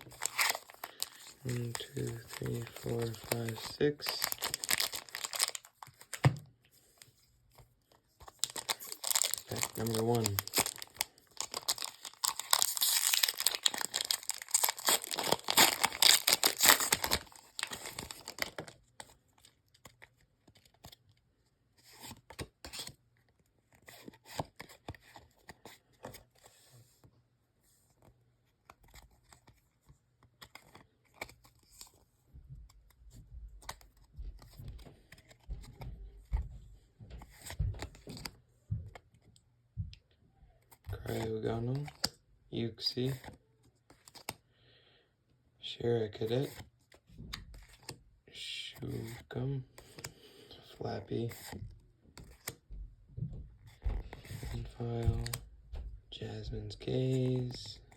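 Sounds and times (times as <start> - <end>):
foil wrapper tearing and crinkling: 0.0 - 6.2, 8.3 - 18.7
trading cards being handled: 0.0 - 21.0, 33.6 - 36.4, 52.2 - 52.7, 53.7 - 57.9.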